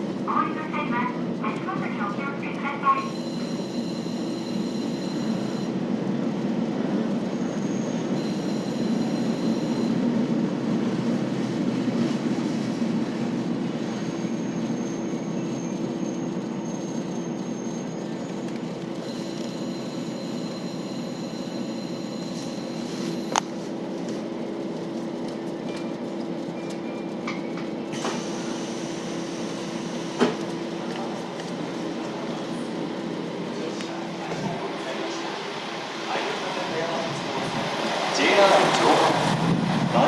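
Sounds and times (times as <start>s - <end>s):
diesel engine drone: 0.0s - 40.0s
high wheel squeal: 7.3s - 10.7s, 13.8s - 23.4s
train wheels on rails: 21.0s - 40.0s.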